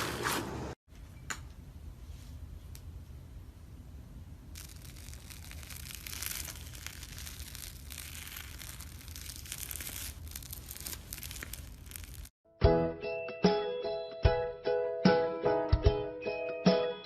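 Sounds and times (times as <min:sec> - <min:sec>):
slime crackling and popping: 0:04.5 - 0:12.3.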